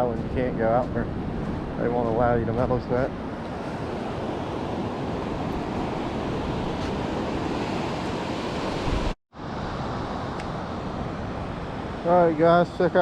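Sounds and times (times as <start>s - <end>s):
ocean surf: 0.0s - 13.0s
wind buffeting microphone: 0.0s - 13.0s.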